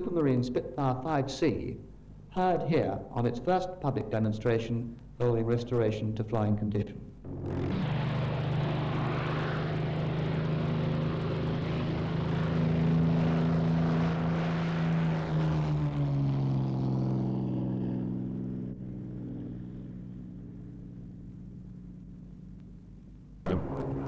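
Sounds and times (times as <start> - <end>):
aircraft engine running: 7.2 - 24.0.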